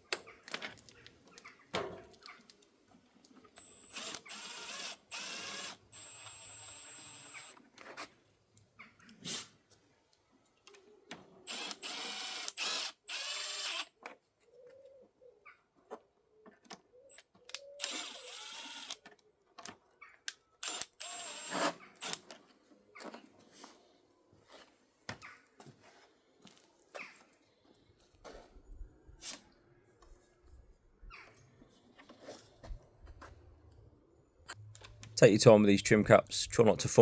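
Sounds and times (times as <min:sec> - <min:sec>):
cordless drill whining: 0:03.6 - 0:07.6, 0:11.5 - 0:13.9, 0:17.5 - 0:19.0, 0:20.6 - 0:22.3.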